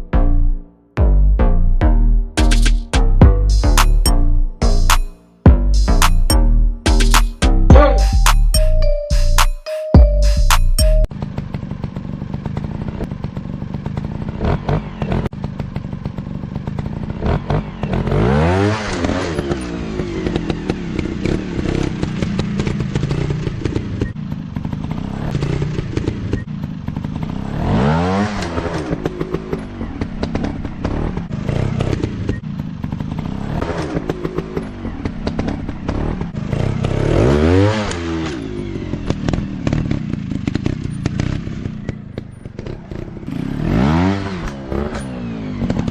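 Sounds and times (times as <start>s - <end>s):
dirt bike engine revving: 11.2s - 45.9s.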